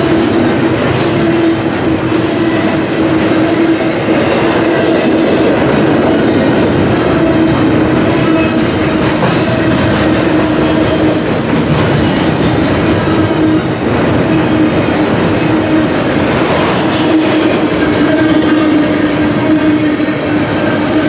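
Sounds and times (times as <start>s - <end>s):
train passing rumble: 0.0s - 21.0s.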